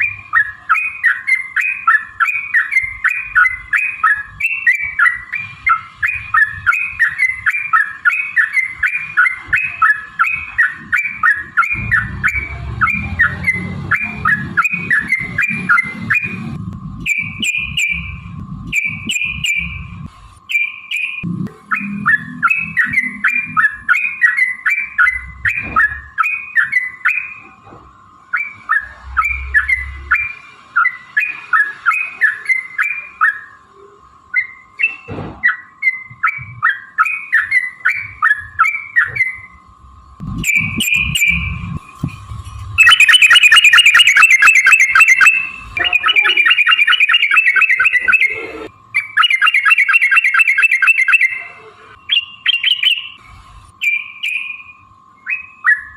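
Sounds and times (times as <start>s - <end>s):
bird bubbling chirps: 0.0s - 20.0s, 40.3s - 41.9s, 42.8s - 51.4s
bird fast rattling trill: 40.4s - 41.6s, 42.8s - 48.3s, 49.0s - 51.4s.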